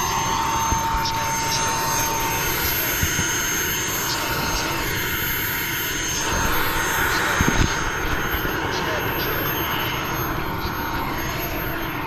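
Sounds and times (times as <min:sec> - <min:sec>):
model aircraft engine: 0:00.0 - 0:12.0
wind buffeting microphone: 0:06.1 - 0:09.0.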